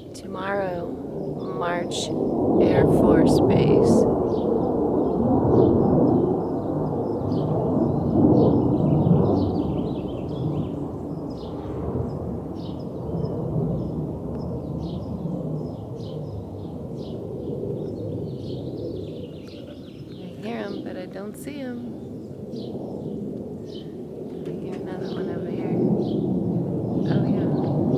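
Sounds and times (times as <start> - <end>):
aircraft engine rumbling overhead: 0.0 - 27.9
small birds chirping: 17.8 - 27.9.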